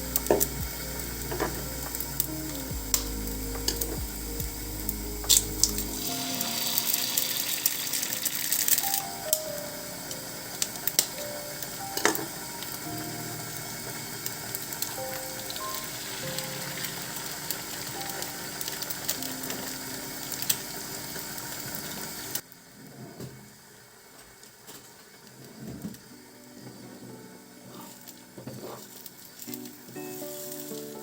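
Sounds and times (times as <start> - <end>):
food sizzling in a frying pan: 0.0 - 22.6.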